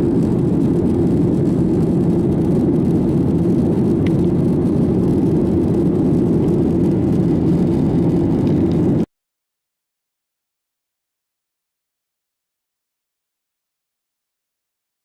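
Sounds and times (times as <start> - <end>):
airliner cabin engine rumble: 0.0 - 9.1.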